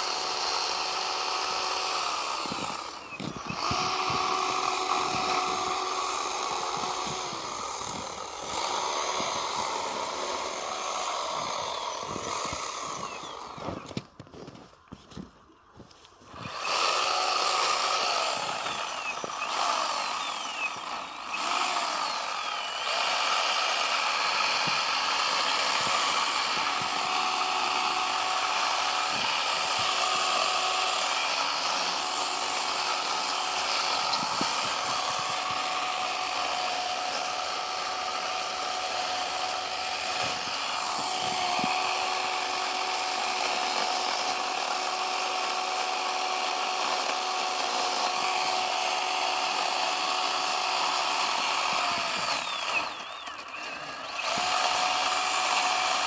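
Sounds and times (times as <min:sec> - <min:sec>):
chainsaw cutting snow: 0:00.0 - 0:56.0.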